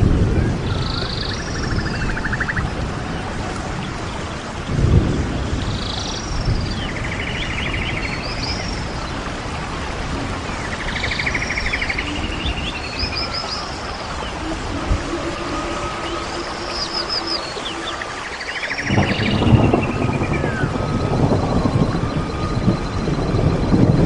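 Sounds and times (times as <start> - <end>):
birds calling with buzzy trills: 0.2 - 24.0
steady low rumble: 12.2 - 24.0.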